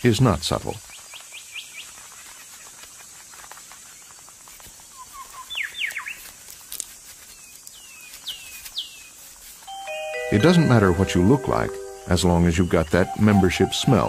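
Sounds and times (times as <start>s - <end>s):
faint steady hiss: 0.0s - 14.0s
birds chirping: 4.8s - 6.2s, 7.4s - 14.0s.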